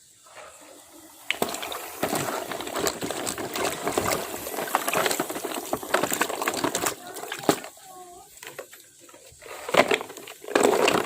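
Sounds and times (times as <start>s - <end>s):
water splashing and sloshing: 0.0s - 11.0s
small clicks and knocks: 1.3s - 11.0s.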